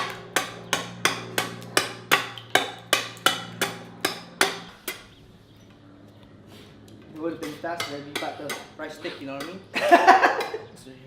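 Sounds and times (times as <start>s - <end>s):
hammer striking wood: 0.0s - 5.1s, 7.4s - 8.8s.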